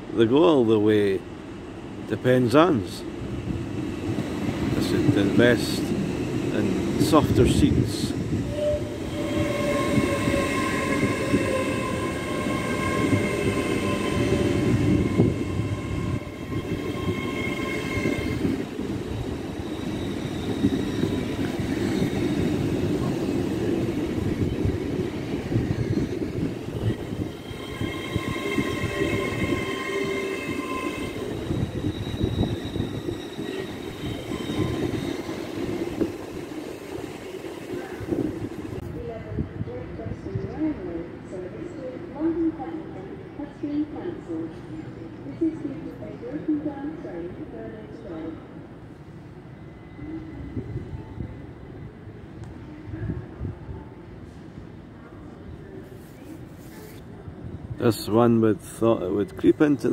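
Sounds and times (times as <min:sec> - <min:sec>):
train wheels rumbling: 0:02.9 - 0:38.9.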